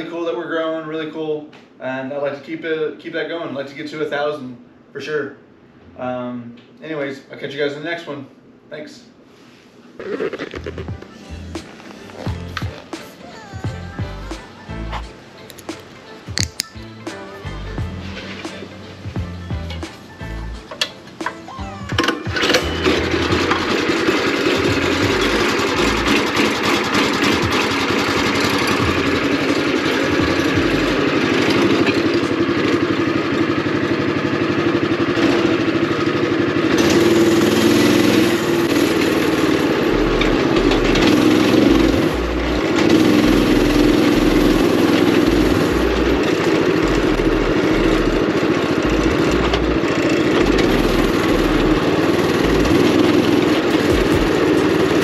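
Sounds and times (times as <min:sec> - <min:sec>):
go-kart engine running: 0:21.9 - 0:55.0.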